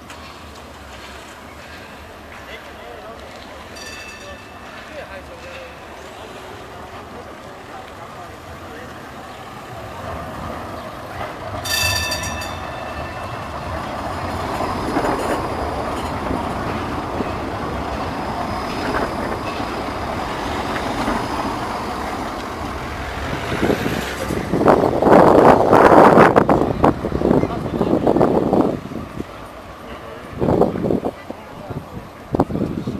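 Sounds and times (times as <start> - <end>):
tram rumbling on rails: 0.0 - 32.9
wheels clattering on track: 0.0 - 32.9
brief high ringing tone: 11.6 - 13.8.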